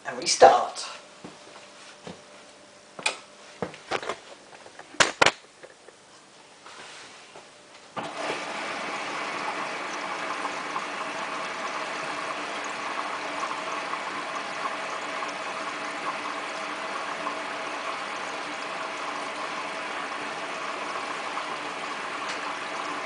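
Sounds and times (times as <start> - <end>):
water rushing into washing machine: 8.0 - 23.0.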